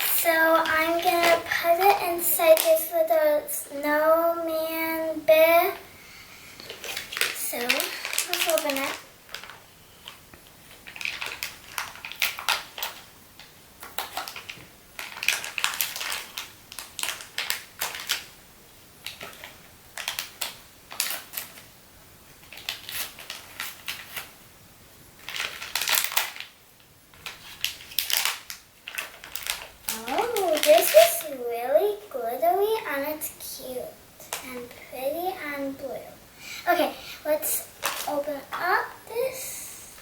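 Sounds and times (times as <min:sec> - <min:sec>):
plastic packaging crinkling: 0:00.0 - 0:03.1, 0:06.6 - 0:18.4, 0:19.0 - 0:21.7, 0:22.3 - 0:24.4, 0:25.2 - 0:32.0, 0:36.7 - 0:40.0.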